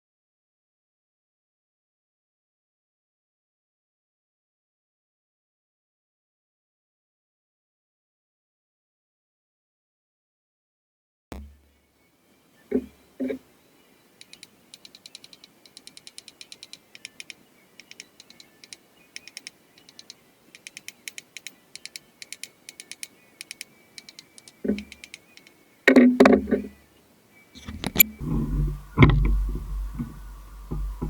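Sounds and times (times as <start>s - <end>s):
rapid ratchet-like clicking: 14.2s - 25.6s.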